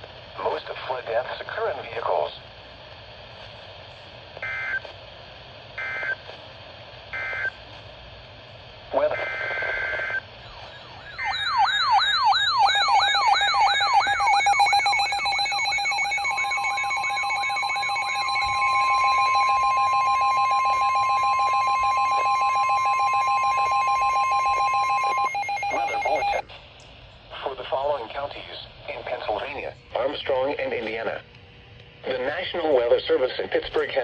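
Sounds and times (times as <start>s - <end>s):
siren-like electronic wail: 10.0s - 26.4s
pulsing attention tone: 10.5s - 26.4s
second steady tone: 10.7s - 26.4s.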